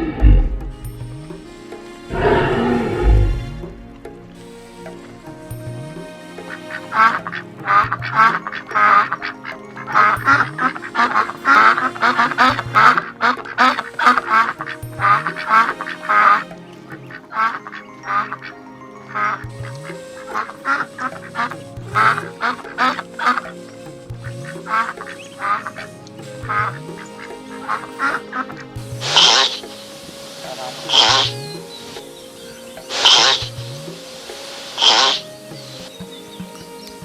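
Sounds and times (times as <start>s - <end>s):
music with a regular beat: 0.2s - 9.0s
ducks quacking: 26.6s - 32.0s, 34.2s - 35.2s.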